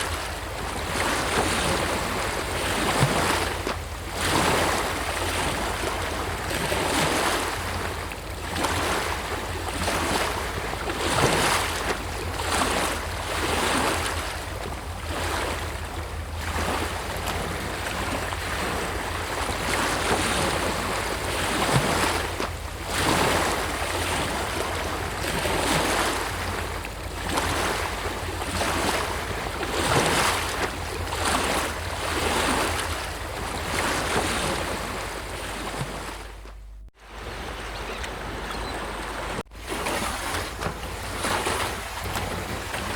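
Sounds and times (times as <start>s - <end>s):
sea waves breaking on beach: 0.0s - 42.9s.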